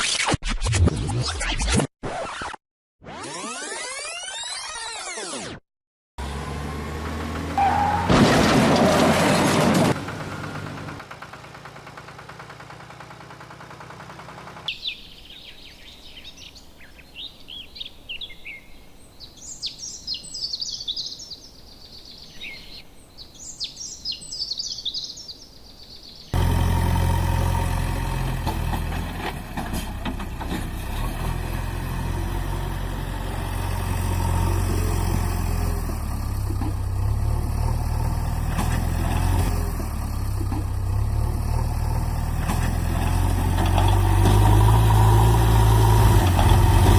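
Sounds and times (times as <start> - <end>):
birds chirping: 14.7 - 26.4.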